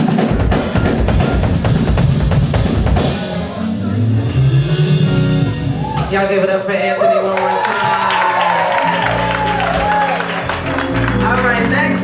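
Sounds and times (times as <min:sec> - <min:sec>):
drum kit playing: 0:00.0 - 0:12.0
low bass notes: 0:00.8 - 0:06.5, 0:09.0 - 0:12.0.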